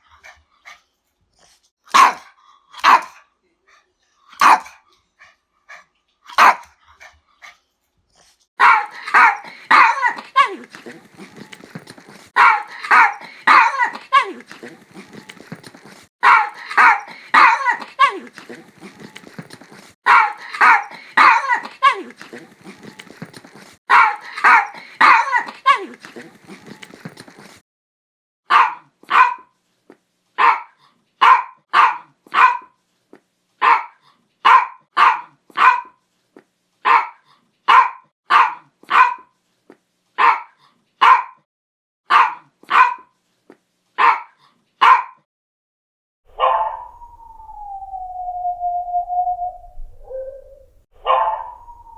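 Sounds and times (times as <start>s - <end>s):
dog barking: 1.9s - 3.3s, 4.3s - 4.8s, 6.3s - 6.7s, 8.6s - 11.4s, 12.1s - 15.1s, 15.8s - 25.5s, 28.5s - 29.5s, 30.4s - 32.8s, 33.6s - 36.0s, 36.8s - 39.3s, 40.2s - 41.4s, 42.1s - 43.1s, 44.0s - 45.2s, 46.3s - 47.4s, 50.0s - 51.9s.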